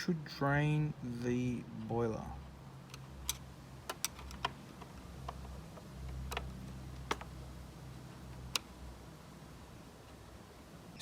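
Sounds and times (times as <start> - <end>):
low steady hum: 0.0 - 11.0
irregular ticks and clicks: 2.9 - 7.3, 8.3 - 8.8.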